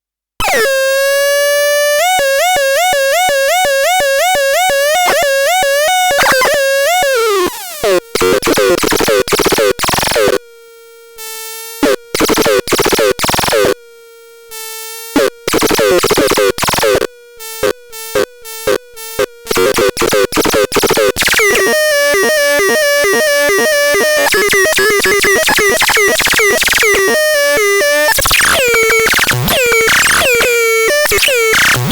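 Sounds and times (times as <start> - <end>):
buzzy synthesizer tone: 1.6 - 7.9, 21.2 - 31.9.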